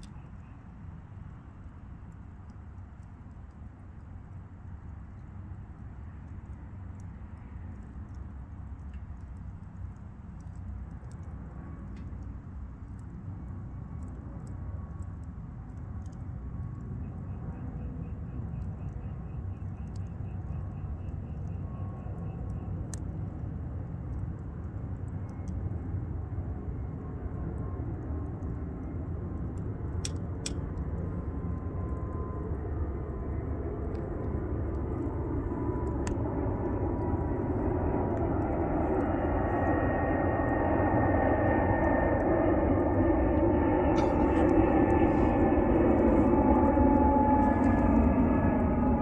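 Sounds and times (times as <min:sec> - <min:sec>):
wood fire crackles: 0:00.0 - 0:49.0
airplane flying over: 0:06.0 - 0:49.0.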